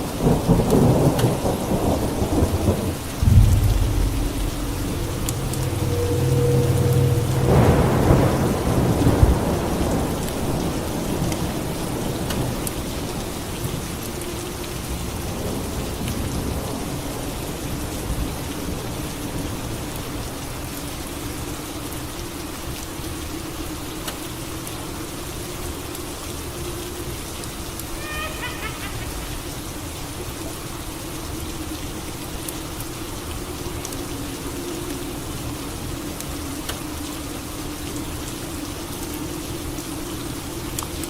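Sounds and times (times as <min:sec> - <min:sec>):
heavy rain: 0:00.0 - 0:41.0
thunder clap rumbling: 0:00.3 - 0:11.3.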